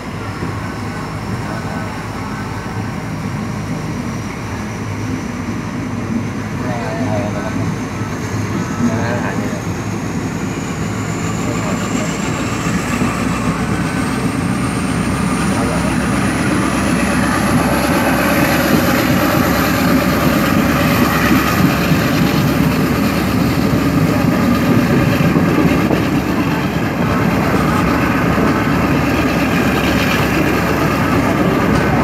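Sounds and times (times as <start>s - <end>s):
train rumble and wheel noise: 0.0s - 32.0s.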